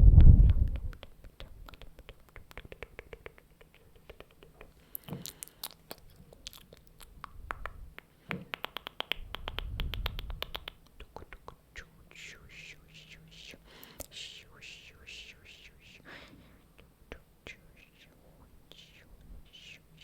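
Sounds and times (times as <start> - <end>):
rapid close-up clicks and taps: 0.5 - 6.0, 7.2 - 11.6.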